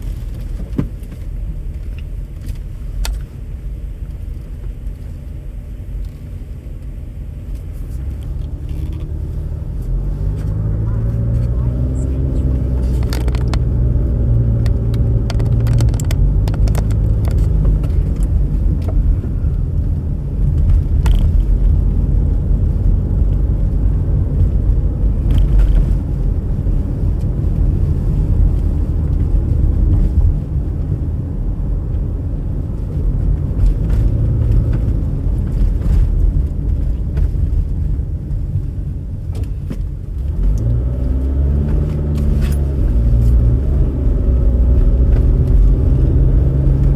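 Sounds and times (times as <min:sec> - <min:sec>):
car engine and road noise: 0:00.0 - 0:46.9
small clicks and knocks: 0:14.6 - 0:19.0.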